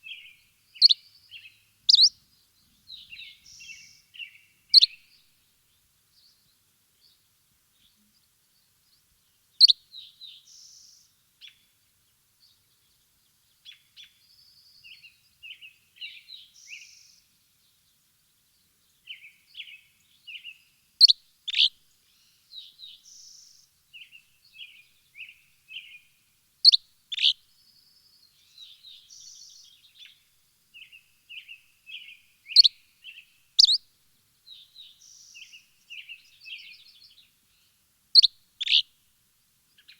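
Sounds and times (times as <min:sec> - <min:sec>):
birds chirping and trilling: 0:30.8 - 0:33.8, 0:38.2 - 0:38.8.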